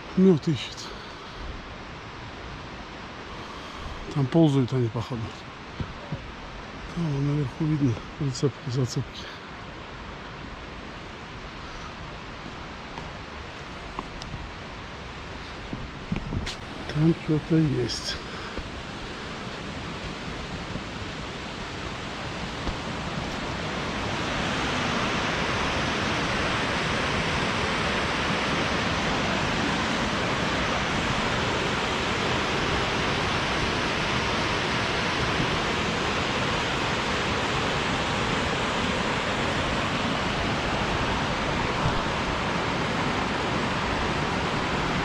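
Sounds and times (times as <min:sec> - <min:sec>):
waterfall rushing: 0:16.6 - 0:45.0.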